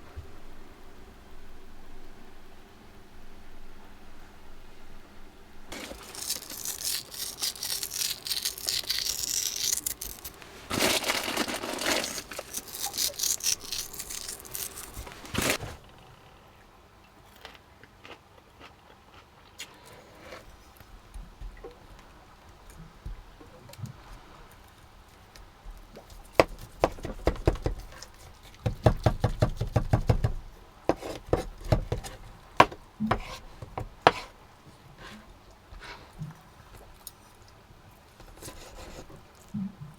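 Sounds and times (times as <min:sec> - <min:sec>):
rustling and tearing: 0:05.7 - 0:15.8, 0:38.2 - 0:39.5
chopping strokes: 0:28.6 - 0:34.4.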